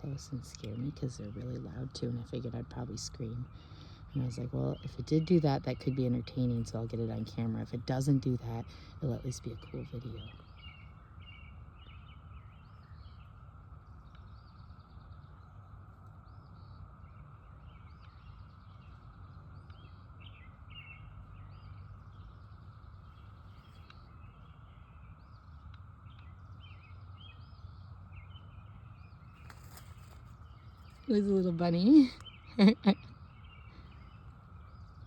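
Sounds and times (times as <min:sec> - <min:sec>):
birds chirping: 0:00.0 - 0:35.0
low steady rumble: 0:00.0 - 0:35.0.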